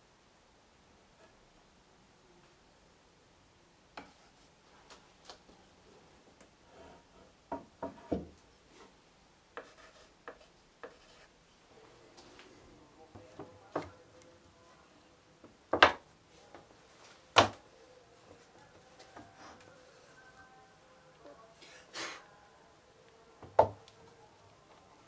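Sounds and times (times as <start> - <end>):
wooden knocks on workbench: 7.5 - 8.3.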